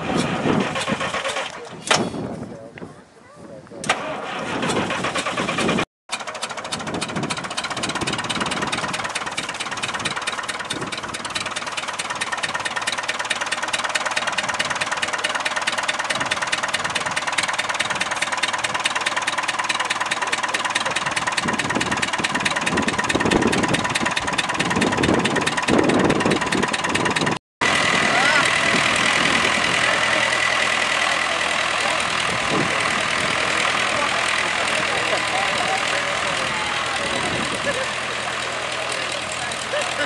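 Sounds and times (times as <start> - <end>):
tractor engine clattering: 0.0 - 2.3, 3.8 - 40.0
heavy low swells: 27.6 - 38.9.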